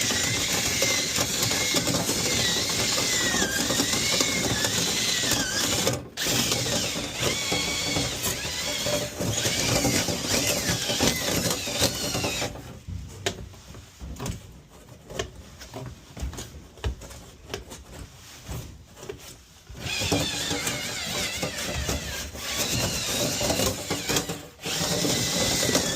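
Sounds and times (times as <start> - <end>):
power drill running: 0.0 - 12.6, 19.8 - 25.9.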